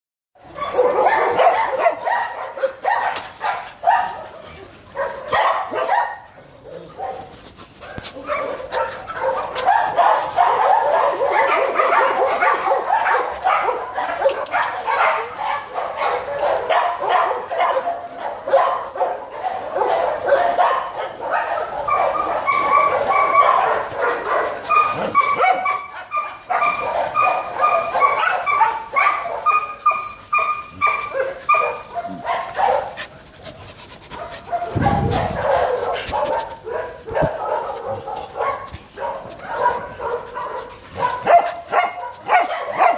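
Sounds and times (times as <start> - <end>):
dogs barking and yipping: 0.4 - 42.9
dog whining: 6.7 - 9.6, 19.5 - 20.7, 24.5 - 28.6, 29.4 - 32.8.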